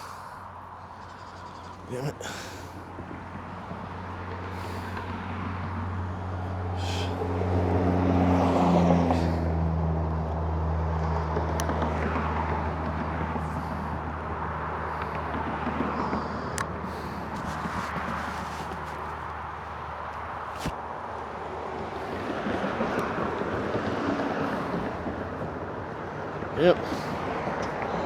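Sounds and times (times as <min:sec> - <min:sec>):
vehicle engine hum: 0:00.0 - 0:28.0
tyre noise: 0:01.9 - 0:02.8, 0:16.9 - 0:20.8.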